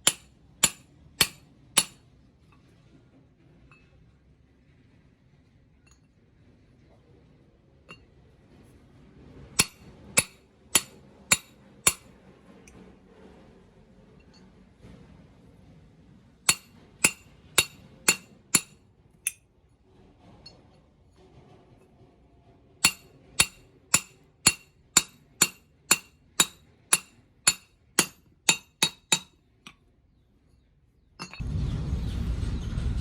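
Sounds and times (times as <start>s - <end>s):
hammer ringing on steel: 0.0s - 2.0s, 9.6s - 12.1s, 16.5s - 18.8s, 22.8s - 29.3s.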